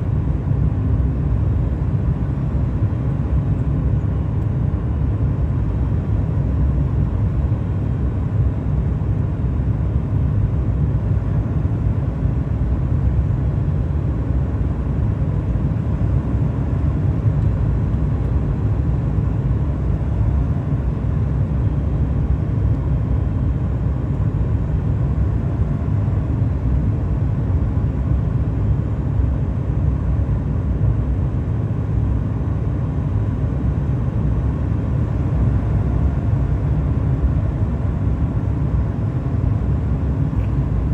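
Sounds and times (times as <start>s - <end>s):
aircraft cabin engine rumble: 0.0s - 40.9s.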